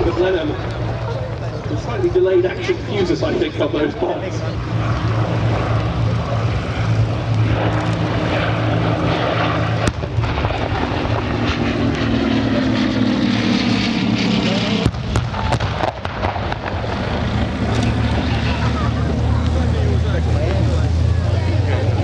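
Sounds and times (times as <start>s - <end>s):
radial aircraft engines droning: 0.0s - 22.0s.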